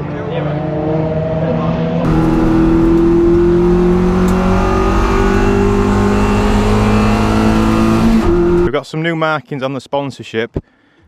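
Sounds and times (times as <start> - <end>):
car engine revving high: 0.0 - 8.8.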